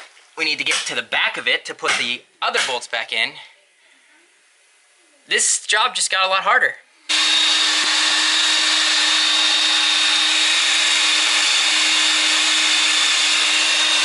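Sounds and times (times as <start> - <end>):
electric drill drilling metal: 7.1 - 14.0.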